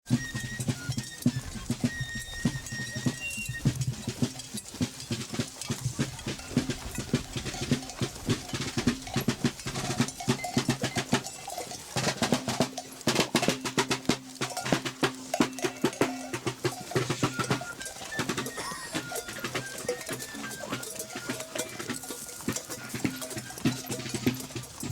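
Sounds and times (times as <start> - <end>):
military drums marching cadence: 0.0 - 24.9
high whistling bird calls: 0.1 - 4.2, 17.2 - 22.4.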